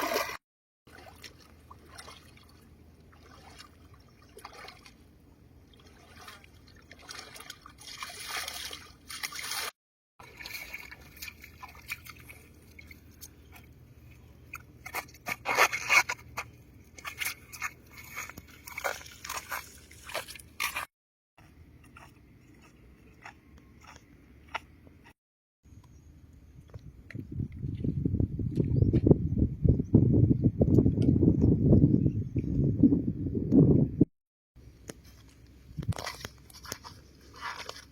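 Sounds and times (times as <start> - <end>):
water sloshing and dripping: 0.0 - 20.9, 35.2 - 37.9
crunching and scraping: 13.0 - 20.9, 34.8 - 37.9.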